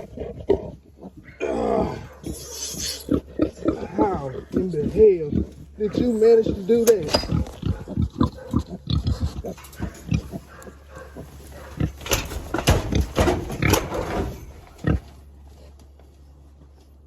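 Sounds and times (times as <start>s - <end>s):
piglet squealing: 0.0s - 4.5s
pig grunts: 0.0s - 15.2s.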